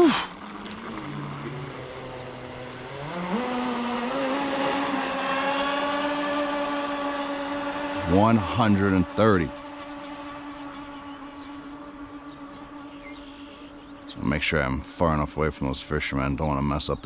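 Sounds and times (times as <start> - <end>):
electric boat motors whining: 0.0 - 14.3.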